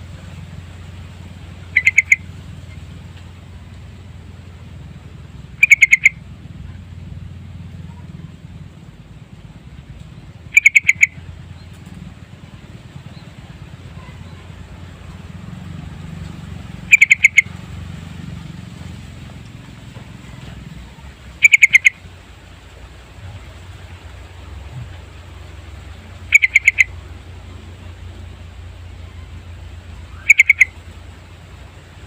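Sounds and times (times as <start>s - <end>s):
low steady hum: 0.0s - 32.0s
bulbul calling: 1.5s - 3.9s, 5.4s - 6.8s, 10.3s - 12.0s, 16.8s - 17.8s, 19.9s - 22.2s, 24.2s - 31.0s.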